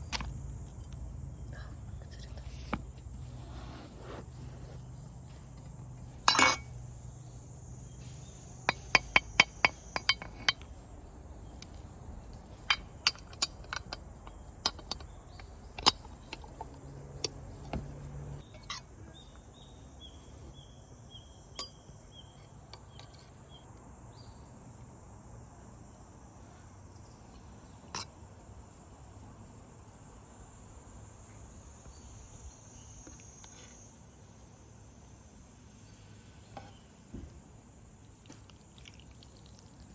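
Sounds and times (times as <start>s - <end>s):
utensils clinking and tapping: 6.2s - 6.8s, 8.7s - 10.7s, 12.6s - 18.9s.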